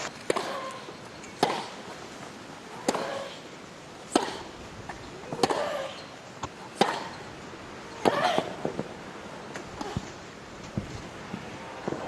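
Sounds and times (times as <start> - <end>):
tennis ball struck by racket: 0.3 - 0.7, 1.4 - 1.8, 2.8 - 3.3, 4.1 - 4.5, 5.3 - 5.9, 6.8 - 7.2.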